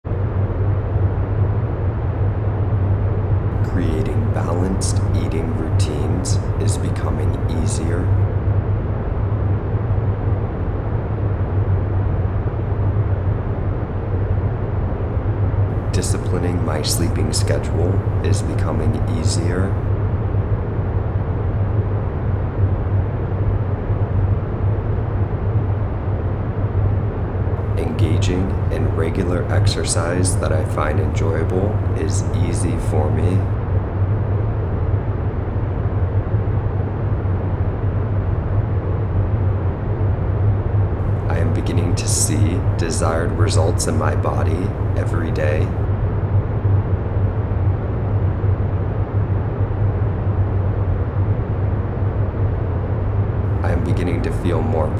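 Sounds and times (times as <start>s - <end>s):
deep constant hum: 0.0s - 54.9s
low rumbling drone: 3.1s - 9.6s, 15.7s - 21.0s, 27.1s - 37.3s, 40.6s - 47.2s, 48.0s - 54.9s.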